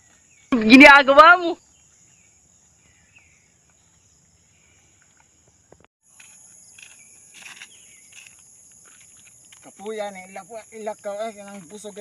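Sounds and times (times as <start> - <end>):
insect chorus: 0.0 - 12.0
footsteps scuffing on dirt: 5.0 - 10.0.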